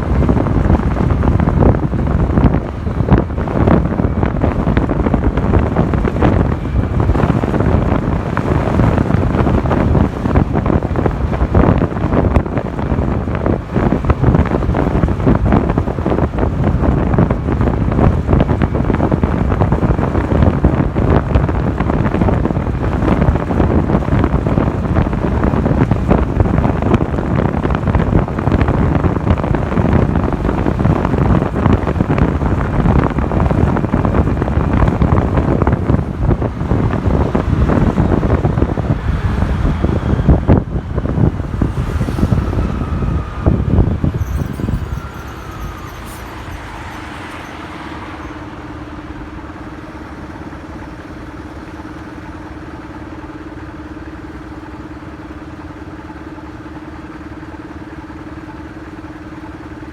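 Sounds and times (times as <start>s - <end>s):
wind buffeting microphone: 0.0s - 54.4s
motorcycle engine: 0.0s - 58.2s
road noise: 0.0s - 59.9s
faint whining tones: 41.4s - 52.9s.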